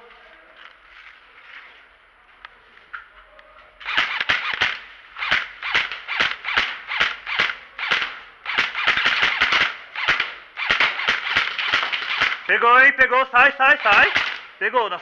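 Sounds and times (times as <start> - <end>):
airsoft guns firing: 3.8 - 14.7.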